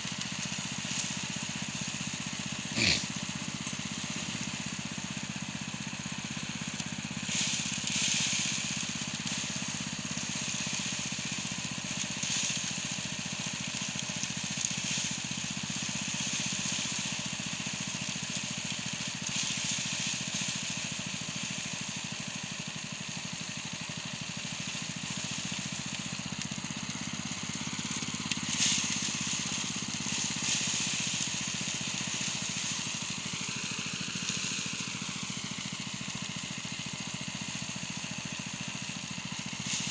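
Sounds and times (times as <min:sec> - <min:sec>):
hissing rustling bursts: 0:00.0 - 0:05.2, 0:26.9 - 0:36.4
small engine running: 0:00.0 - 0:39.9.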